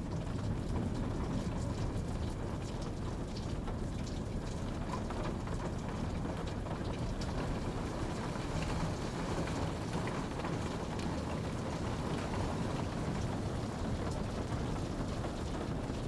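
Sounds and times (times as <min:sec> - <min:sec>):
raindrops ticking on surface: 0:00.0 - 0:16.0
steady rainfall hiss: 0:07.0 - 0:16.0.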